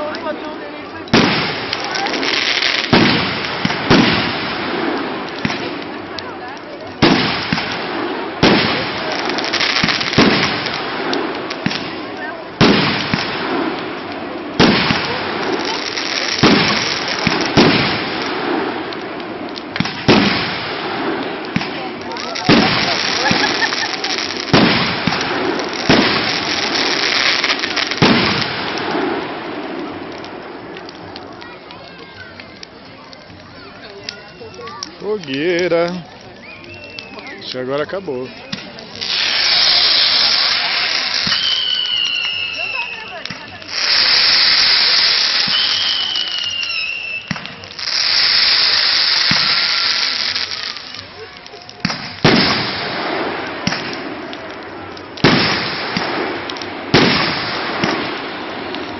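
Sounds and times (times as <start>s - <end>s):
loud firework bangs: 0.0s - 32.3s, 38.5s - 58.9s
fireworks crackling and fizzing: 0.0s - 58.9s
firework hissing whistle: 36.4s - 37.5s, 38.4s - 50.9s.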